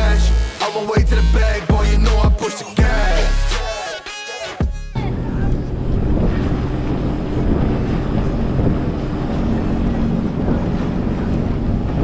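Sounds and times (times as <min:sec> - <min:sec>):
jet ski engine running: 0:04.7 - 0:12.0
wind buffeting microphone: 0:05.0 - 0:12.0.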